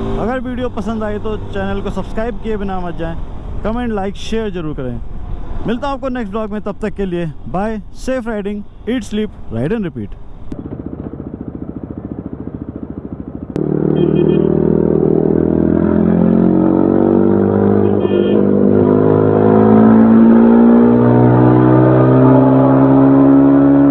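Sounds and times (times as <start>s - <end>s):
motorcycle engine accelerating: 0.0s - 2.6s, 10.3s - 23.9s.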